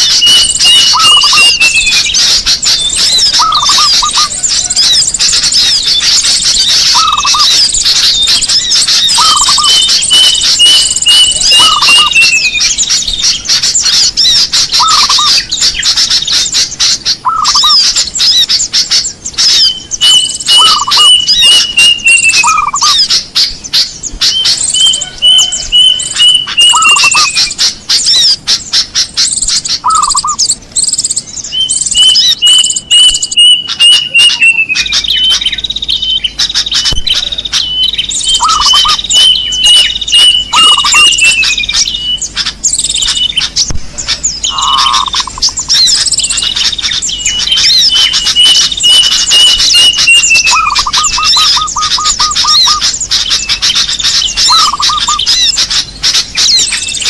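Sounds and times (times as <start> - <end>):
cuckoo whistled notes: 0.0 - 13.4, 14.0 - 15.9, 19.4 - 28.3, 29.8 - 30.4, 31.5 - 42.3, 42.9 - 57.0
small birds chattering: 0.0 - 57.0.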